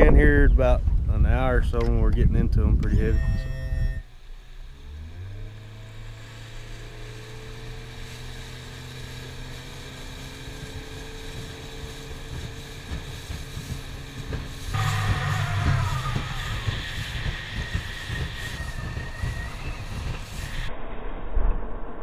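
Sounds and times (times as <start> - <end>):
wind noise: 0.0 - 4.0, 10.8 - 22.0
boat motor running: 2.9 - 20.6.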